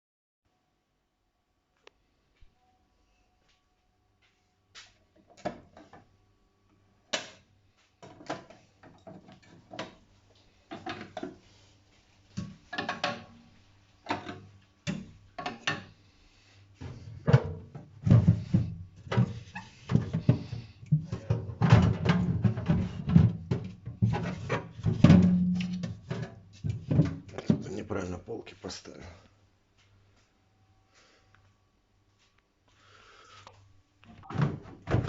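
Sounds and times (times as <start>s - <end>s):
items knocking inside refrigerator: 16.9s - 27.6s, 34.2s - 35.0s.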